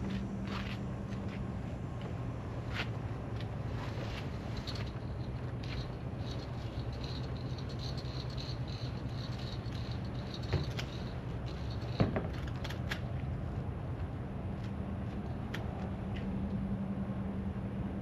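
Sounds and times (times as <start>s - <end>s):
steady low hum: 0.0s - 18.0s
rope and hardware rattling: 3.8s - 13.1s.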